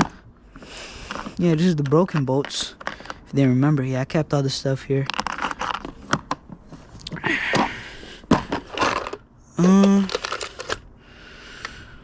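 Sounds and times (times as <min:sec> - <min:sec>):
hardware rustling and clicking: 0:00.0 - 0:03.7, 0:05.0 - 0:10.9
person humming: 0:09.5 - 0:10.2.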